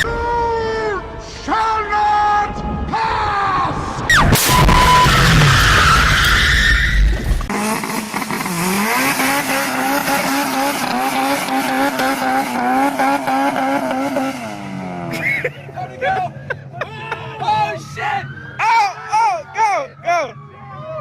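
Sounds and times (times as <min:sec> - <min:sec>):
loud rumbling: 0:02.4 - 0:08.9
tyres squealing: 0:04.1 - 0:07.3
car engine at high revs: 0:07.4 - 0:15.4.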